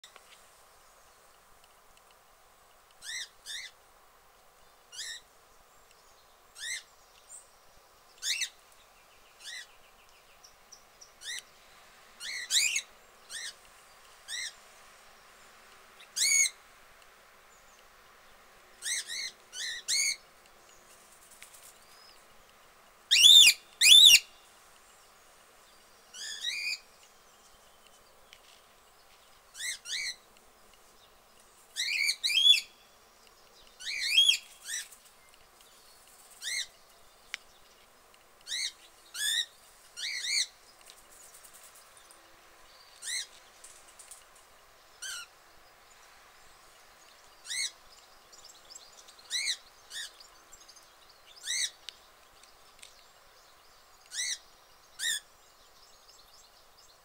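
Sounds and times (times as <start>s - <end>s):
faint background hiss: 0.0s - 57.0s
high bird chirps: 23.1s - 24.4s.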